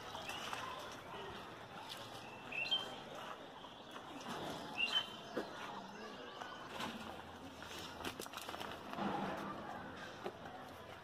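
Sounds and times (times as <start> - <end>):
bird chirping: 2.2 - 6.7.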